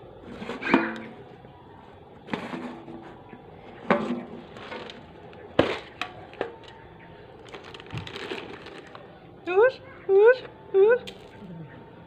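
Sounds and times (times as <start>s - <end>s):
cats crunching food: 7.3s - 9.1s.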